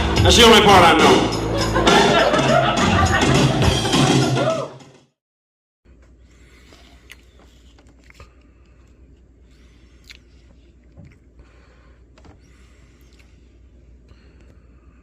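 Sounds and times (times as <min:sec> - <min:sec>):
steady low hum: 0:05.9 - 0:15.0.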